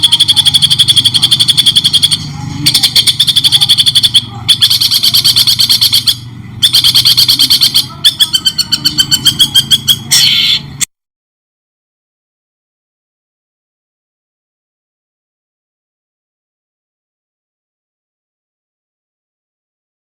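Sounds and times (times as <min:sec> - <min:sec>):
songbird chattering trills: 0:00.0 - 0:10.8.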